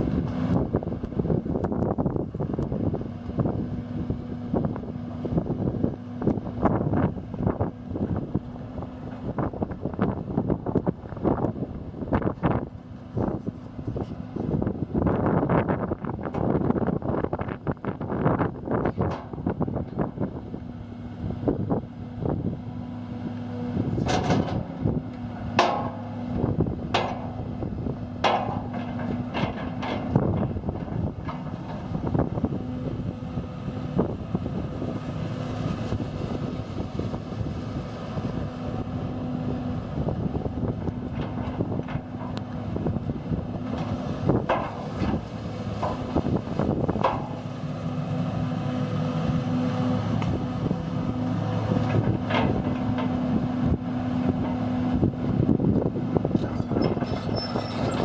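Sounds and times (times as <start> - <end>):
excavator diesel engine hum: 0.0 - 58.0
metallic clanks and knocks: 24.0 - 24.7, 25.5 - 26.0, 26.9 - 27.4, 28.2 - 31.9, 43.7 - 46.1.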